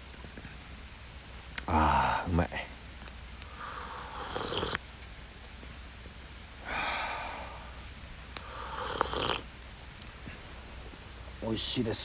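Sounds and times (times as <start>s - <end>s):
person breathing out: 3.5s - 4.8s, 6.6s - 7.7s, 8.4s - 9.4s
person sipping hot coffee: 3.5s - 4.8s, 8.4s - 9.5s.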